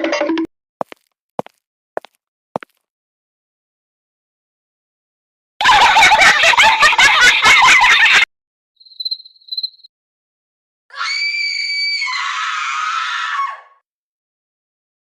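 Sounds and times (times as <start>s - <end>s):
short high chirps: 8.8s - 9.9s
high-pitched scream: 10.9s - 13.8s.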